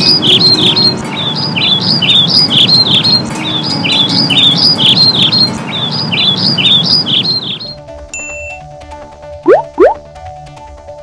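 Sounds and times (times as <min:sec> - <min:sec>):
small birds chirping: 0:00.0 - 0:07.8.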